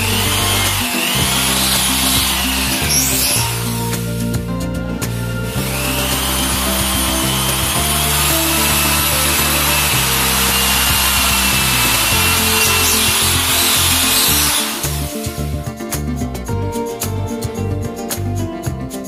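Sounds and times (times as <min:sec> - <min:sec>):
power tool grinding with whine: 0:00.0 - 0:15.6
background music: 0:00.0 - 0:19.0.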